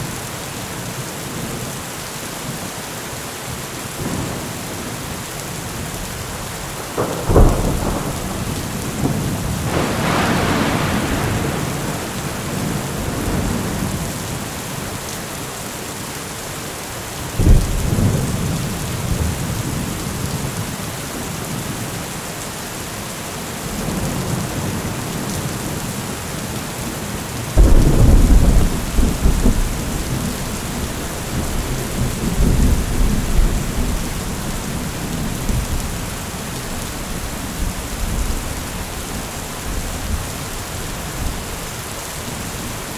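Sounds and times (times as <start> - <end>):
heavy rain falling: 0.0 - 42.9
thunder rumbling and clapping: 6.1 - 14.5, 17.4 - 20.7, 27.6 - 41.8.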